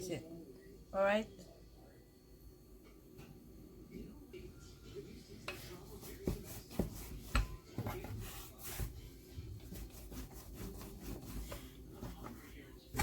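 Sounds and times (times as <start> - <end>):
rubbing and scraping: 5.6 - 13.0.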